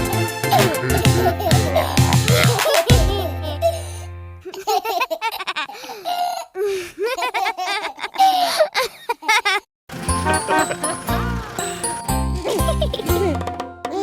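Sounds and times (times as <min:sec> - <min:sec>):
cartoon baby voices giggling: 0:00.5 - 0:03.8, 0:04.5 - 0:09.6, 0:10.2 - 0:14.0
held music chord: 0:09.9 - 0:14.0.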